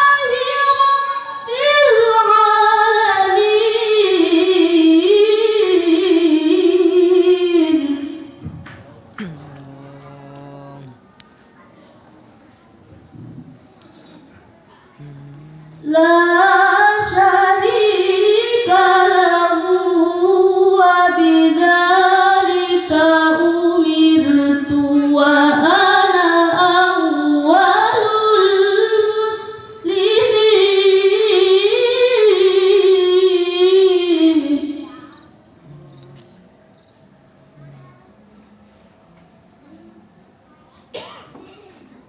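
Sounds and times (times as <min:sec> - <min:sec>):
woman reciting melodically: 0:00.0 - 0:11.4, 0:14.8 - 0:36.4.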